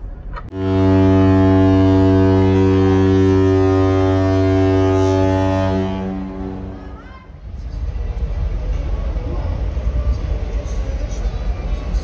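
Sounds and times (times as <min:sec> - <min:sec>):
ship's horn blast: 0:00.5 - 0:07.1.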